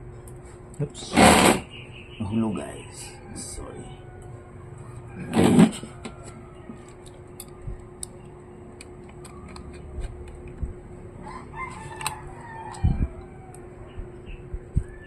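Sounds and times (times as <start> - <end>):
rooster crowing: 2.9 - 7.1, 11.2 - 14.0.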